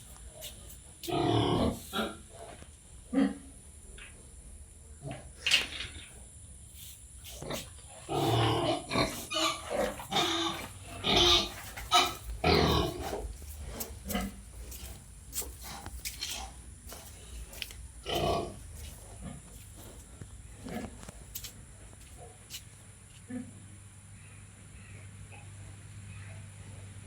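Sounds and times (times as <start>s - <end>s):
pigs grunting: 0.0s - 4.3s, 7.3s - 22.6s.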